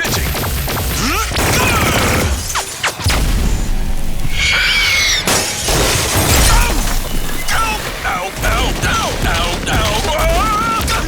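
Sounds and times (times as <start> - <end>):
high squeal: 4.2 - 7.9
crystal shattering and crashing: 4.3 - 8.2.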